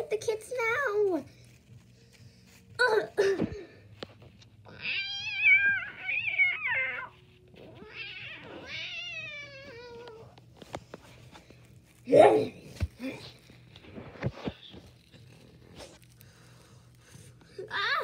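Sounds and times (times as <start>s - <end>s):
cat-like yowling: 4.7s - 10.2s.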